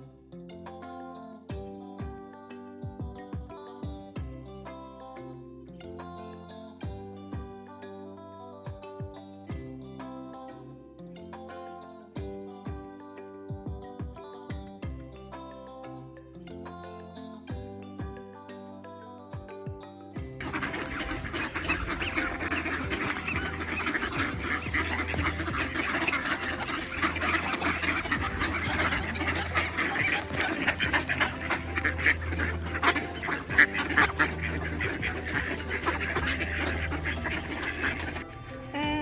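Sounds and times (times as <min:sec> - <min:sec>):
ducks quacking: 0:20.4 - 0:39.0.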